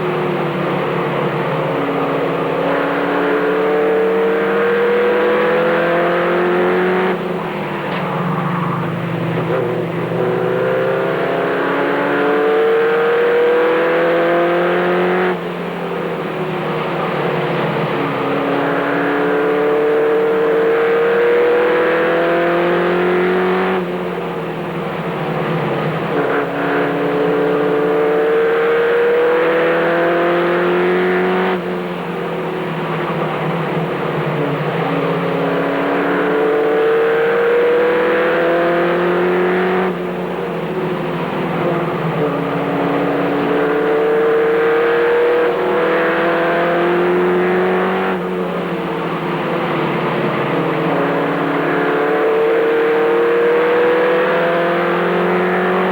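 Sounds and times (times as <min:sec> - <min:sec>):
truck engine accelerating: 0:00.0 - 0:55.9.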